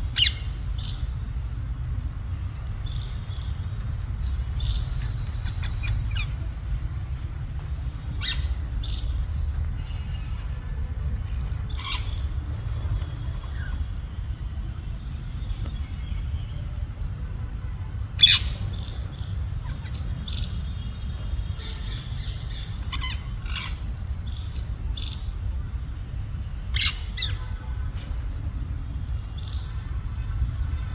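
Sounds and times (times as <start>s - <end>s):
parakeets squawking and chirping: 0.1s - 1.1s, 2.6s - 6.5s, 8.1s - 9.5s, 11.4s - 13.9s, 18.2s - 25.4s, 26.6s - 27.7s.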